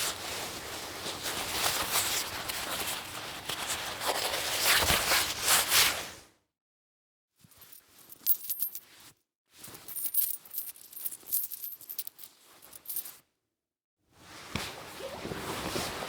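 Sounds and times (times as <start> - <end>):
small metal objects clinking: 7.6 - 8.8, 9.9 - 13.2.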